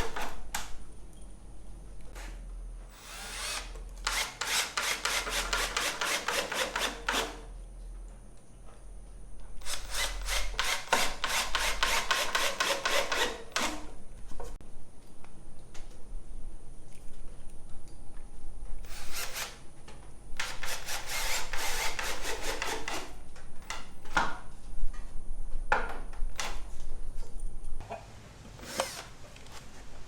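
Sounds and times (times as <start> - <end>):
power drill drilling into wood: 2.9 - 7.0, 28.6 - 29.1.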